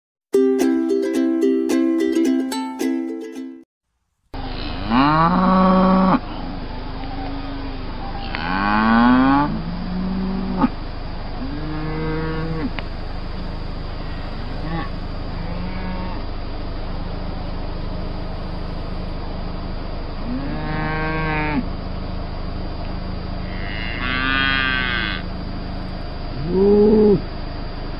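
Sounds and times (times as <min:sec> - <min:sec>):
water buffaloes lowing: 0:04.4 - 0:19.1, 0:26.0 - 0:27.4.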